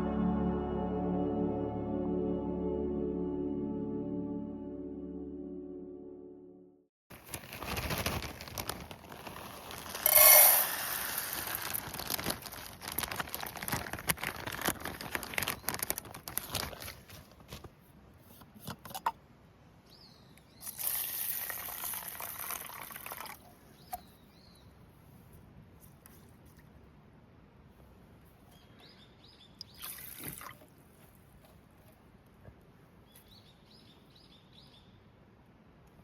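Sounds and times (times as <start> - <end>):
liquid being poured: 20.7 - 23.4.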